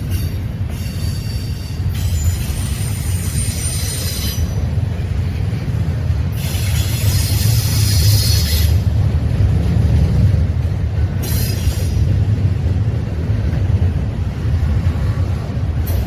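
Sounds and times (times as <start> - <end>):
train wheels rumbling on rail: 0.0 - 16.0
high-pitched wheel squeal: 0.1 - 4.6.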